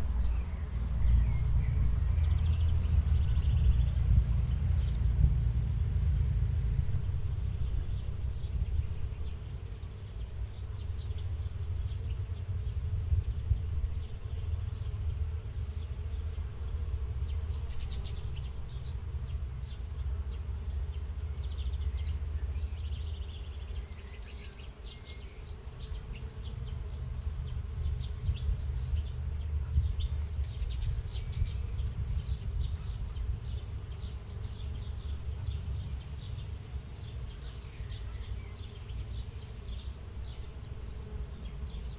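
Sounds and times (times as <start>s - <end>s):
low rumble: 0.0s - 19.7s
insects buzzing: 0.0s - 41.9s.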